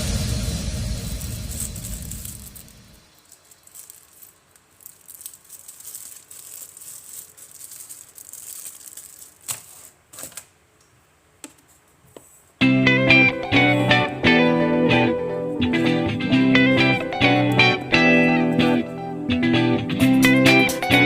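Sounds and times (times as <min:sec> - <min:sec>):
packaging rustling and crackling: 0:01.0 - 0:10.5
guitar music: 0:12.6 - 0:21.0.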